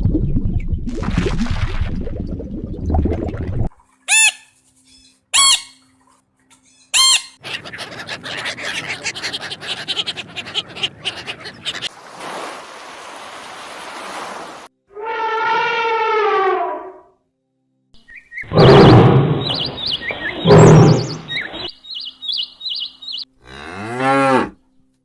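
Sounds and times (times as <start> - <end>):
animal calls: 7.0 - 11.9, 18.5 - 21.7
rapid chatter: 7.4 - 11.9.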